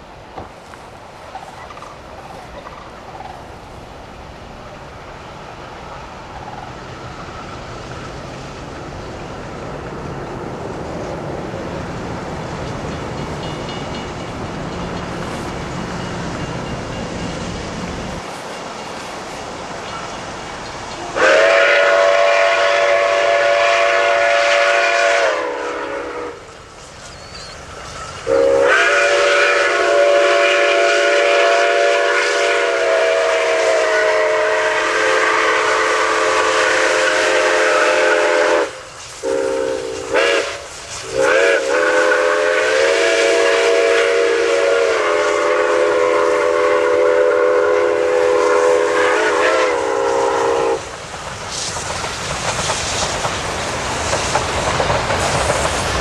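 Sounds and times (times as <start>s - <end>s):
steam hissing: 0.0s - 56.0s
steam whistle blasts: 21.0s - 26.5s, 28.2s - 50.9s.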